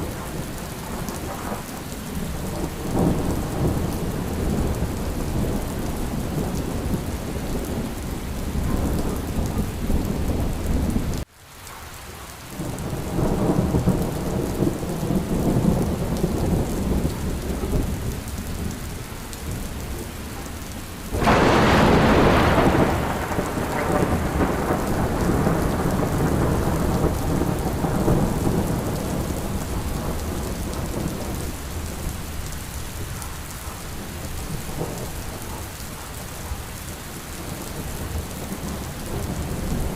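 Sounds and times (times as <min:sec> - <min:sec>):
thunder rumble: 0:00.0 - 0:11.2, 0:12.6 - 0:39.9
steady rain: 0:00.0 - 0:39.9
loud thunderclap: 0:21.1 - 0:31.6.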